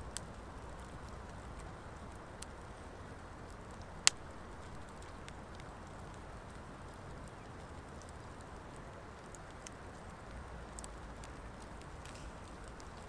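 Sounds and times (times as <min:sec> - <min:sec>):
campfire burning: 0:00.0 - 0:13.0
faint fire crackles: 0:00.0 - 0:13.0.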